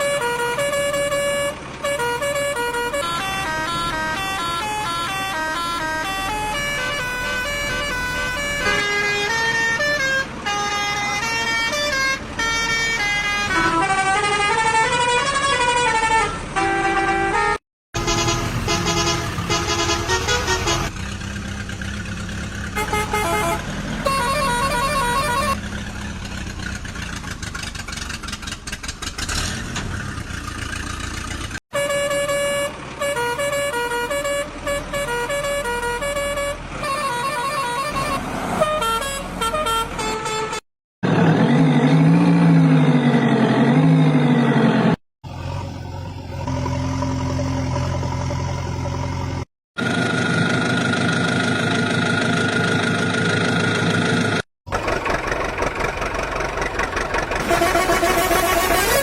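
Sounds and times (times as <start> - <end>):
melodic vehicle horn toots: 0.0 - 21.0, 22.8 - 25.6, 31.7 - 40.6, 57.4 - 59.0.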